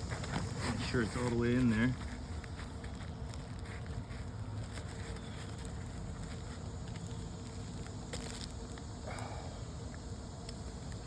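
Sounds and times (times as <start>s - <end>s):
shingle scraping: 0.0s - 8.6s
shingle rustling and tapping: 0.0s - 8.9s
outdoor background noise: 0.0s - 11.0s.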